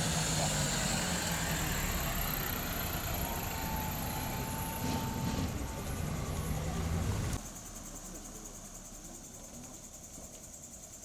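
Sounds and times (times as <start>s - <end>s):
highway traffic rumble: 0.0s - 7.5s.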